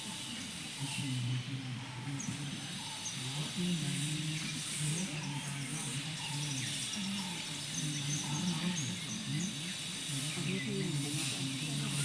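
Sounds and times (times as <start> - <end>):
low voices overlapping: 0.0 - 12.0.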